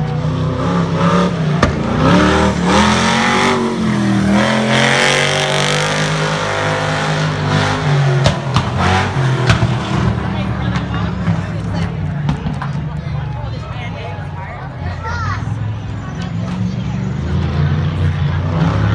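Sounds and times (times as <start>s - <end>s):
truck engine revving: 0.0s - 18.9s.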